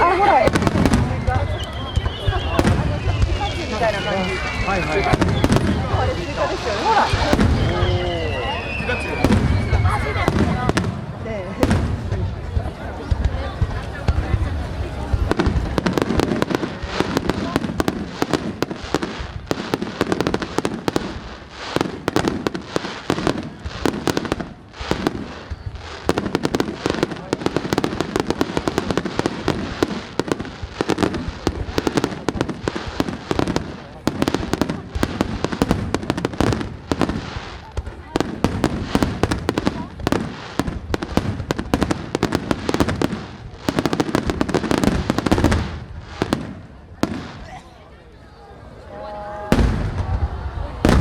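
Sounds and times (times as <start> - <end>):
fireworks bangs and cracks: 0.0 - 47.7, 49.2 - 51.0.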